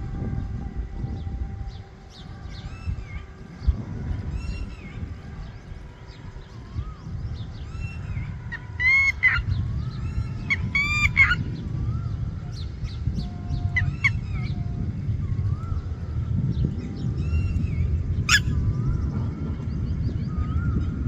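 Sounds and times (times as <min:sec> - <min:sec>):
birds chirping and whistling: 0:00.0 - 0:21.0
low rumble: 0:00.0 - 0:21.0
harsh bird calls: 0:06.4 - 0:14.6.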